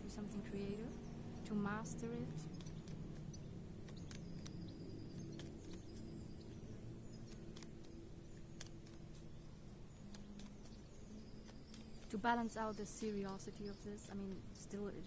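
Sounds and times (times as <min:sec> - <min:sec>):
low steady hum: 0:00.0 - 0:15.0
faint clicks: 0:02.3 - 0:14.8.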